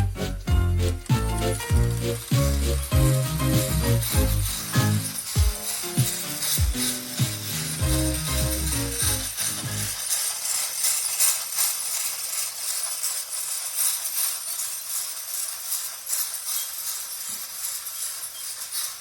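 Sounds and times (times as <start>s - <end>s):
jingling metal rattle: 0.0s - 19.0s
model steam engine chuffing: 0.0s - 19.0s.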